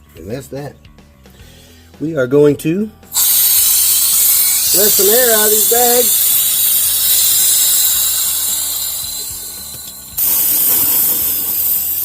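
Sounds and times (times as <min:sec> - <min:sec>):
compressed air hissing: 0:03.1 - 0:12.0.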